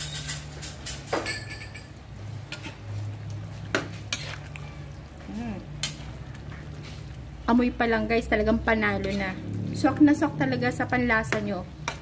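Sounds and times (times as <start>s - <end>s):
metal spoon stirring stew in pan: 2.2s - 7.3s.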